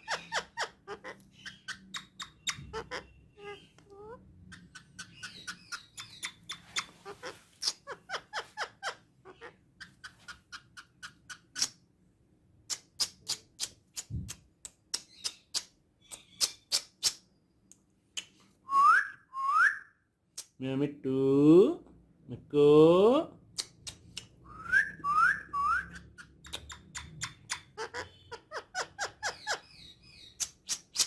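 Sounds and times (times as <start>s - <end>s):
parakeet clicks and chirps: 1.1s - 3.0s, 3.6s - 7.0s, 9.8s - 11.8s, 12.7s - 18.4s, 25.6s - 27.8s, 29.2s - 31.0s.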